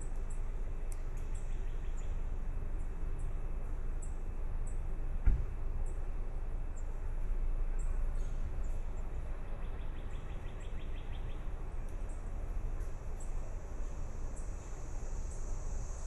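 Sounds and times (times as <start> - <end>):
thump: 5.2 - 5.6.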